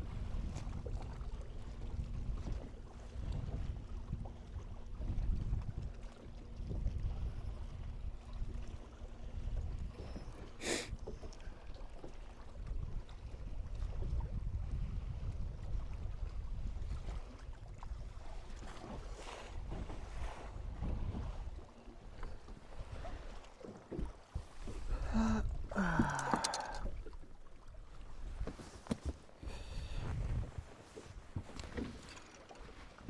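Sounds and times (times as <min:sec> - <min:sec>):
wind rumbling on microphone: 0:00.0 - 0:10.4, 0:12.4 - 0:21.6, 0:29.4 - 0:32.1.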